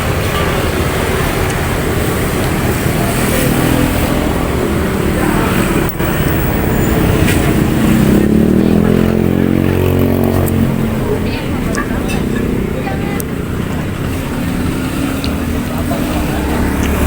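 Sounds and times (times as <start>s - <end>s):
cars and motorcycles passing: 0.0s - 17.0s
vehicle engine: 0.0s - 17.0s.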